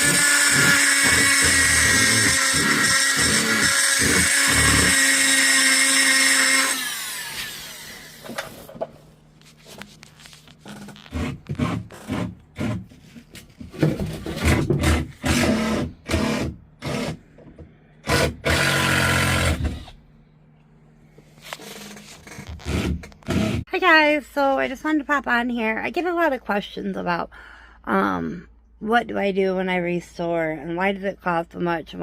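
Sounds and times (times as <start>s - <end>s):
rotary tool sanding bursts: 0.0s - 8.3s
rotary tool whining: 0.0s - 8.7s.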